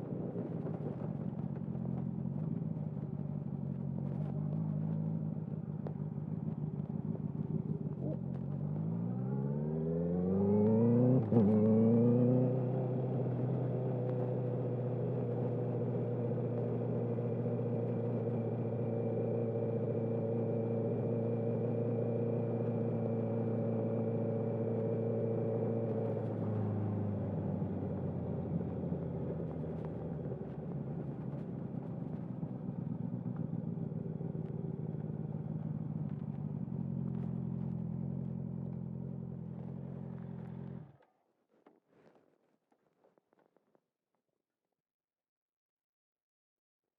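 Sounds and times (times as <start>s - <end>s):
motorcycle engine running: 12.8s - 41.0s.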